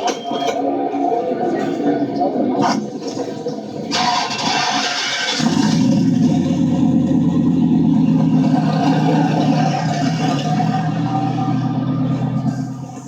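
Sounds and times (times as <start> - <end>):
car engine running: 4.0 - 13.0.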